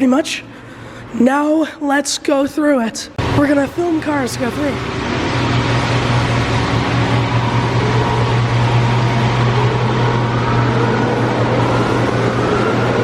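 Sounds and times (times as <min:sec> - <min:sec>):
car wash machinery hum: 0:03.0 - 0:13.0
faint whine: 0:03.2 - 0:13.0.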